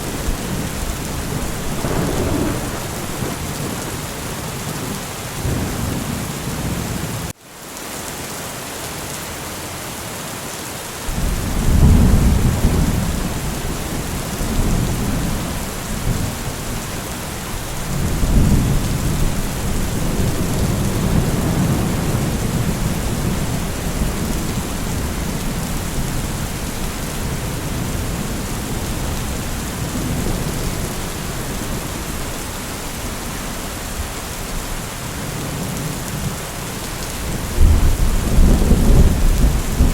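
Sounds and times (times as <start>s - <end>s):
rolling thunder: 0.0s - 6.9s, 11.1s - 33.2s, 37.2s - 39.9s
steady rain: 0.0s - 39.9s.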